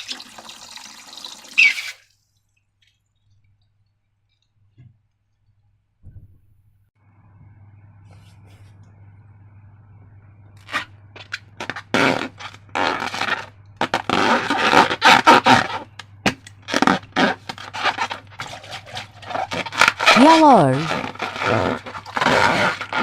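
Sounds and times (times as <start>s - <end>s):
low steady hum: 2.2s - 23.0s
slime scraping and rubbing: 10.6s - 16.0s, 16.6s - 23.0s.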